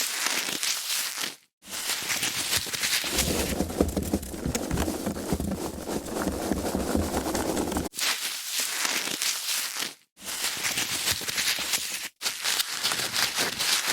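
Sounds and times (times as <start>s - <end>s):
deep rubbing: 3.1s - 7.9s
foam packaging crackling: 3.1s - 7.9s.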